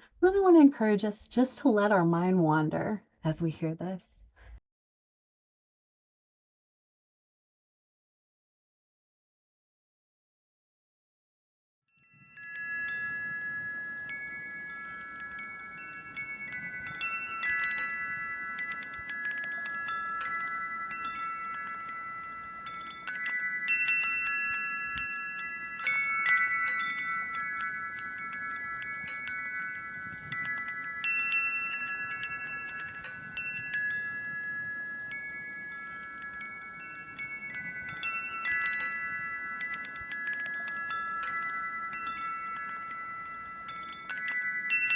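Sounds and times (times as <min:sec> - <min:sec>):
wind chimes ringing: 0:11.9 - 0:44.9.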